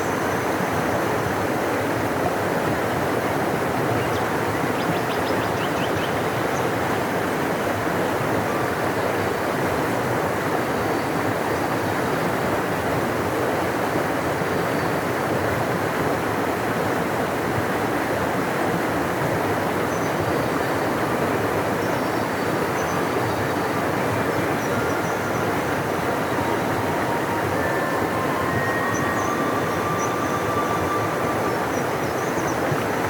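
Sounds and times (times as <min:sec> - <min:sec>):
river water rushing: 0:15.2 - 0:33.0.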